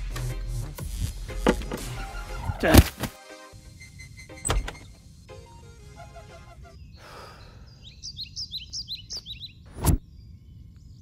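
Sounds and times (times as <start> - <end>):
bird chirping: 6.5 - 11.0.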